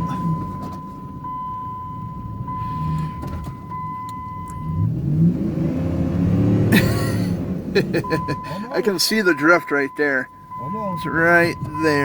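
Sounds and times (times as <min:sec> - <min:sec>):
seatbelt warning chime: 0:00.0 - 0:04.8, 0:08.0 - 0:12.0
car engine running: 0:00.0 - 0:12.0.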